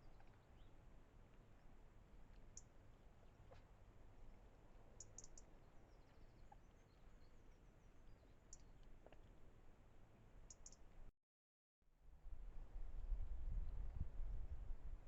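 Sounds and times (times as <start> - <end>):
faint high-pitched clicks: 5.0 - 6.2, 8.5 - 9.3, 10.5 - 10.9.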